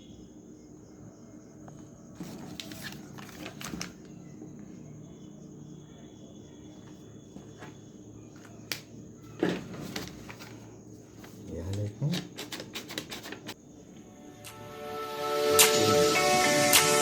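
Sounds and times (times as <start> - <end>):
faint steady hum: 0.0 - 12.5, 13.1 - 17.0
paper crackling rustles: 2.2 - 4.3, 6.8 - 13.6.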